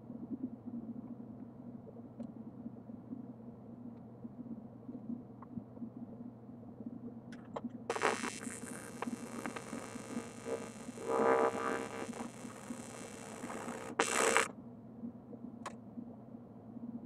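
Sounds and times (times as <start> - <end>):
clicks: 7.4 - 14.5
welding arc buzzing: 7.9 - 14.5.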